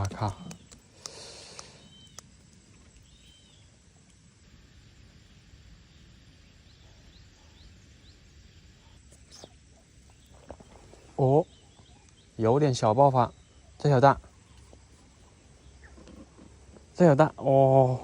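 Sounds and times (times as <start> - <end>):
small clicks: 0.0 - 3.3
faint high chirps: 0.0 - 18.0
faint outdoor background noise: 0.0 - 18.0.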